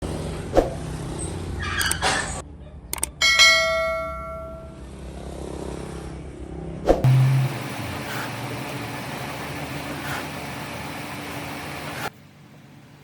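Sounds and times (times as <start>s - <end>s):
bell-like metal strike: 3.2s - 4.8s
machine hum: 7.0s - 13.0s.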